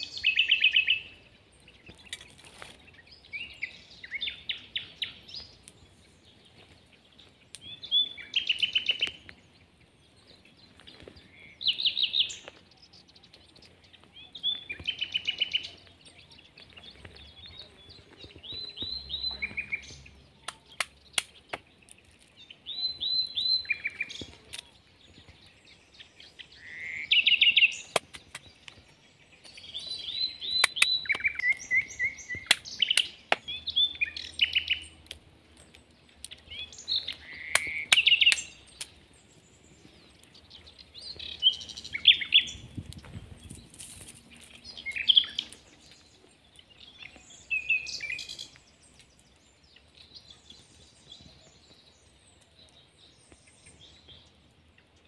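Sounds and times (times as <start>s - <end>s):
songbird singing: 0.0s - 55.0s
sharp clicks: 20.4s - 22.0s.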